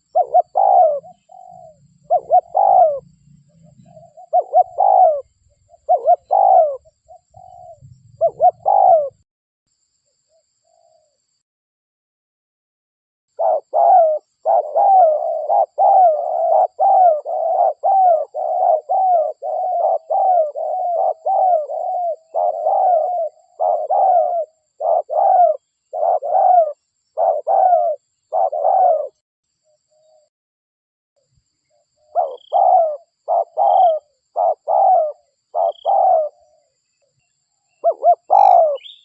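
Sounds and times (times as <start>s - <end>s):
dove cooing: 0.0s - 9.2s, 13.4s - 29.2s, 32.0s - 36.8s, 37.8s - 39.0s.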